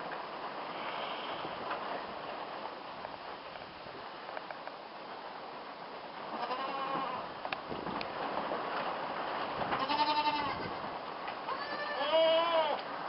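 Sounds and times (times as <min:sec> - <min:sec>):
steady low background noise: 0:00.0 - 0:13.0
goat kids bleating: 0:06.3 - 0:07.3, 0:09.8 - 0:10.8, 0:11.5 - 0:12.8.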